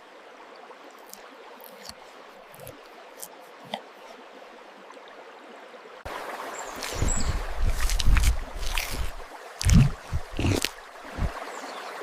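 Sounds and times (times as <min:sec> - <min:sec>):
running water hiss: 0:06.0 - 0:12.0.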